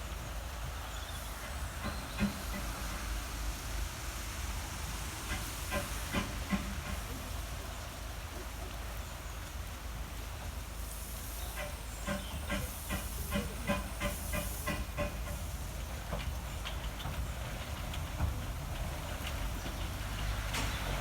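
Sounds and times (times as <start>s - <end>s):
regular train clicks: 0.0s - 21.0s
steam hissing: 0.3s - 8.4s, 10.4s - 21.0s.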